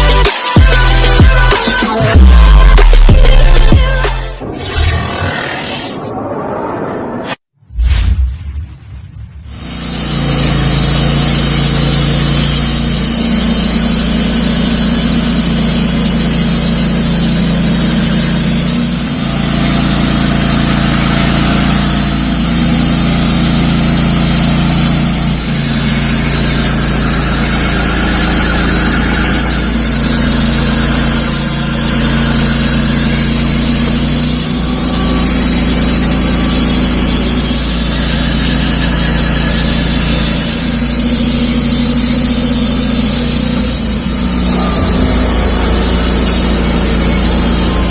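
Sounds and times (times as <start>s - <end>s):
sawmill engine running: 9.6s - 47.9s
band blade sawing wood: 10.3s - 47.9s.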